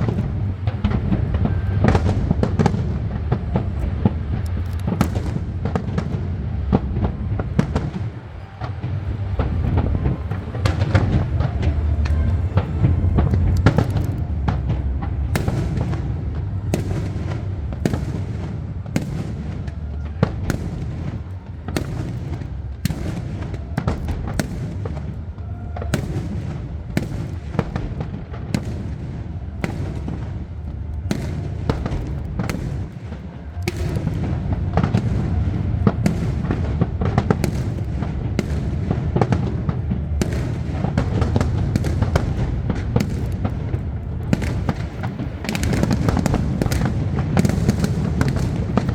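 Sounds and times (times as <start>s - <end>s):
firework shells bursting: 0.0s - 19.3s, 31.0s - 48.9s
low rumble of booms: 0.0s - 48.9s.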